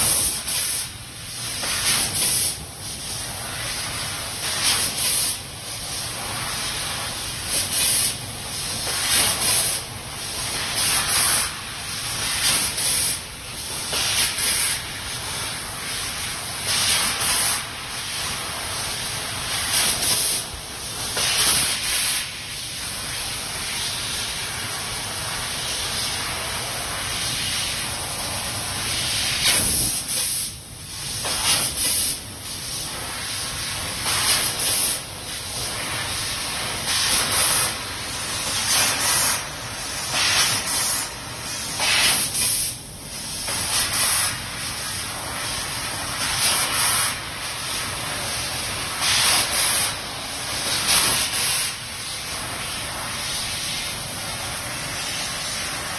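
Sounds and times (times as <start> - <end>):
laser cutting head gas hiss: 29.1 - 30.6, 31.2 - 32.2, 38.5 - 42.8.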